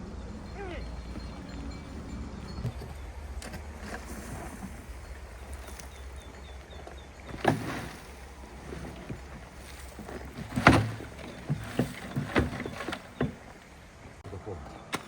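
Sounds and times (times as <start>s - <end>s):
low wind rumble: 0.0s - 11.7s.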